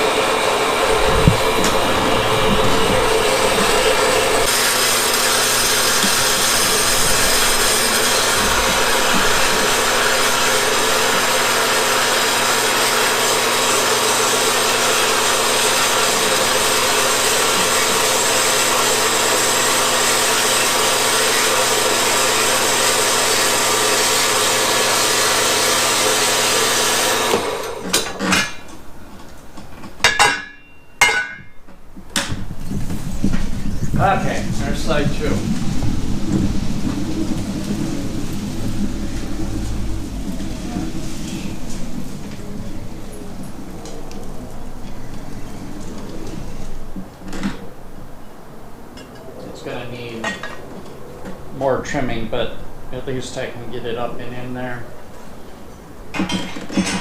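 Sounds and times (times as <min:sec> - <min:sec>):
power tool cutting metal: 0:00.0 - 0:28.7
sharp knocks and clatters: 0:56.1 - 0:57.0.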